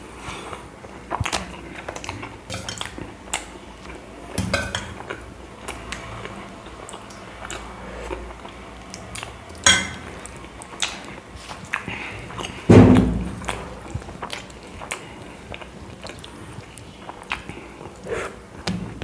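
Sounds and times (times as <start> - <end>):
quiet chewing: 0.2 - 12.7, 13.3 - 19.0
heavy thump: 12.7 - 13.6.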